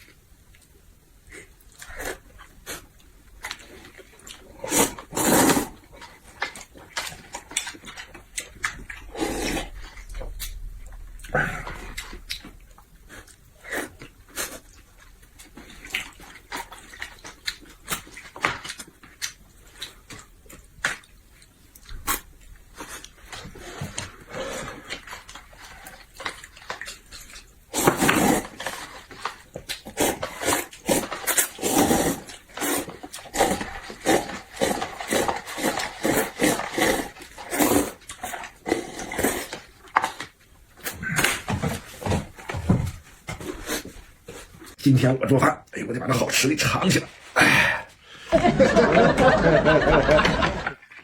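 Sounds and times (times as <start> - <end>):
wet chewing and lip-smacking: 5.7 - 24.1, 28.9 - 31.6.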